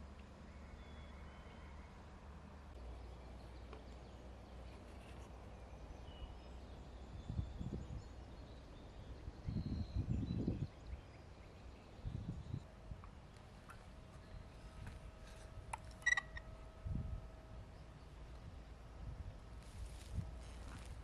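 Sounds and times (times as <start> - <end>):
faint birdsong: 0.0 - 21.0
steady low rumble: 12.0 - 21.0.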